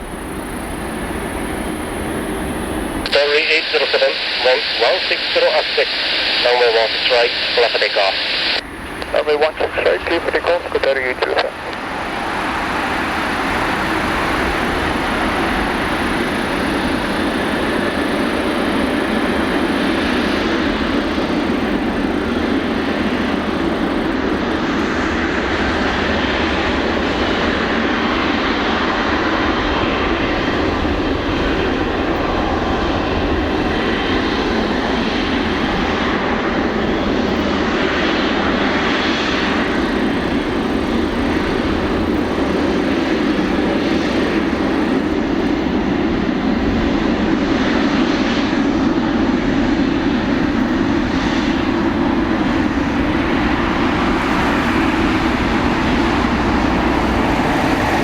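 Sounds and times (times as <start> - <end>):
jet engines at takeoff: 0.0 - 58.0.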